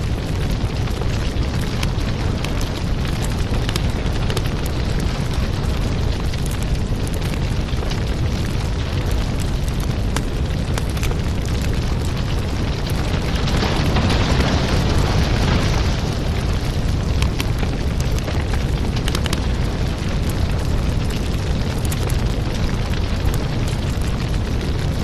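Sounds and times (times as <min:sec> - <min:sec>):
fire crackling and popping: 0:00.0 - 0:25.0.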